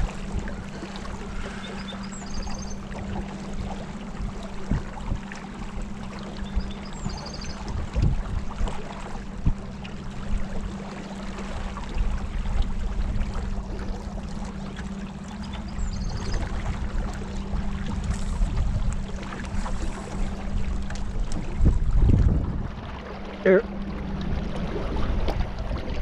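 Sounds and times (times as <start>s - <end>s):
wind buffeting microphone: 0.0s - 10.7s, 15.5s - 23.2s
boat motor humming: 0.0s - 26.0s
water rushing: 0.0s - 26.0s.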